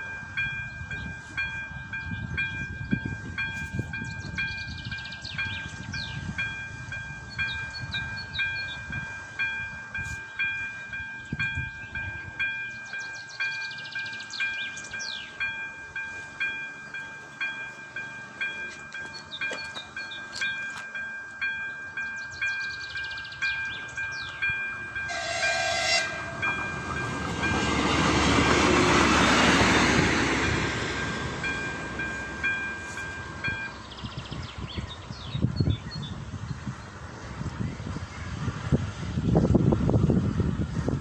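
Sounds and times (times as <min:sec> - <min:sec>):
railroad crossing bell ringing: 0:00.0 - 0:36.0
train rumbling past: 0:00.0 - 0:41.0
train horn blast: 0:25.0 - 0:27.2.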